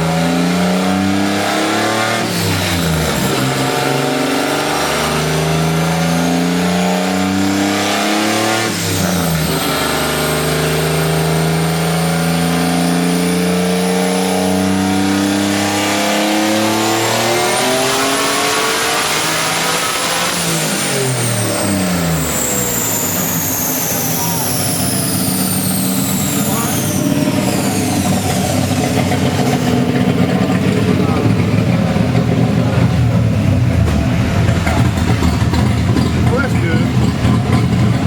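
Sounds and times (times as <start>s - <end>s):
car engine accelerating hard: 0.0s - 38.0s
high whine: 21.2s - 38.0s.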